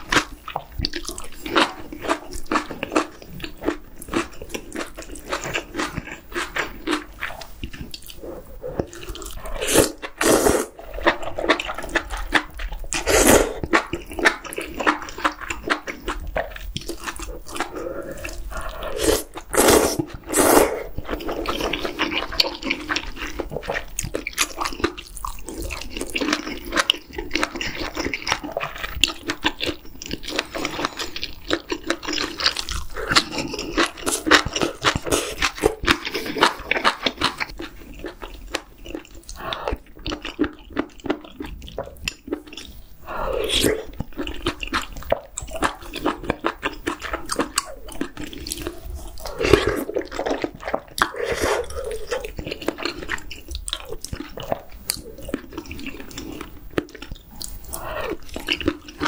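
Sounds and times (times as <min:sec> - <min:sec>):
wet chewing and lip smacks: 0:00.0 - 0:59.0
noodle slurps: 0:05.3 - 0:14.4, 0:16.4 - 0:23.7, 0:43.0 - 0:44.1, 0:45.6 - 0:53.4.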